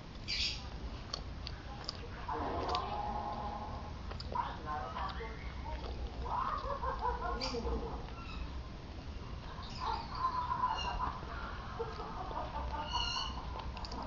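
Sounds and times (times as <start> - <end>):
steady low hum: 0.0 - 14.0
bird calls: 0.3 - 0.6, 6.4 - 8.6, 9.4 - 13.8.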